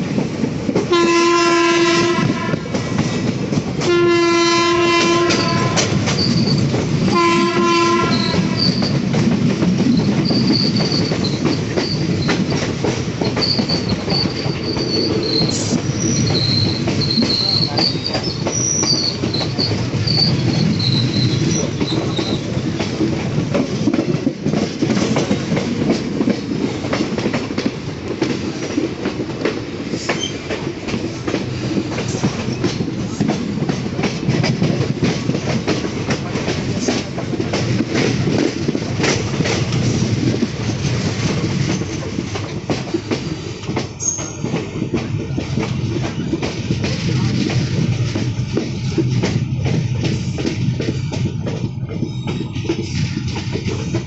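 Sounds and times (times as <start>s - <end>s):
train coaches rumbling: 0.0s - 54.0s
wheels clacking over rail joints: 1.9s - 54.0s
high wheel squeal: 6.1s - 6.6s, 8.1s - 9.0s, 10.2s - 12.6s, 13.2s - 22.5s.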